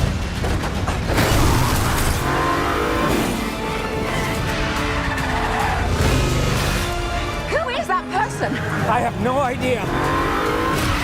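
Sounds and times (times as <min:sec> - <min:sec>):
film music score: 0:00.0 - 0:11.0
car engine revving: 0:01.1 - 0:07.4, 0:08.6 - 0:11.0.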